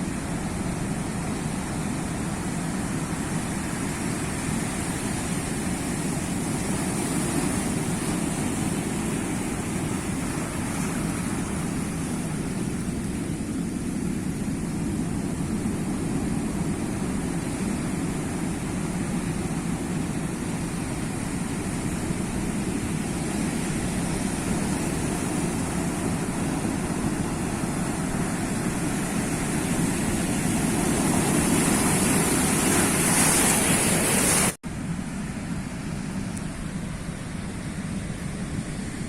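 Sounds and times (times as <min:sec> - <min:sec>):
sea waves washing on shore: 0:00.0 - 0:39.0.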